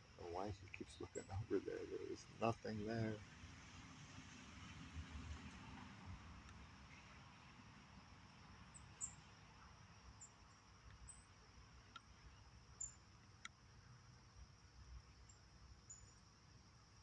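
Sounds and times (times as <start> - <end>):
soft ticks: 11.9 - 12.1.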